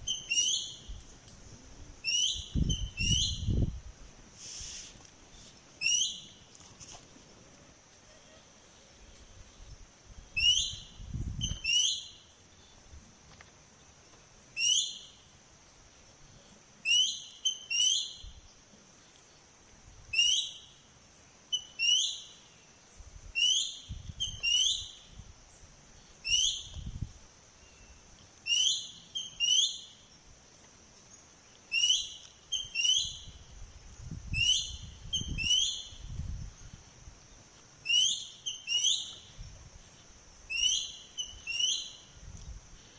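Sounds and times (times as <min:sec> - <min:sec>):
bird whistling calls: 0:00.0 - 0:01.0, 0:02.0 - 0:03.6, 0:05.8 - 0:06.4, 0:10.4 - 0:12.2, 0:23.4 - 0:25.0, 0:26.2 - 0:26.8, 0:28.5 - 0:29.9, 0:31.7 - 0:33.4, 0:34.3 - 0:36.0, 0:37.8 - 0:39.2, 0:40.5 - 0:42.0.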